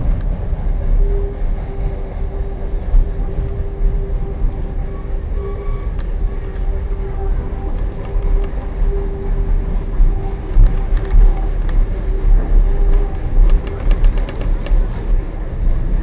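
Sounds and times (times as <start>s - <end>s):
train wheels rumbling on rail: 0.0s - 16.0s
sharp clicks: 12.9s - 15.2s.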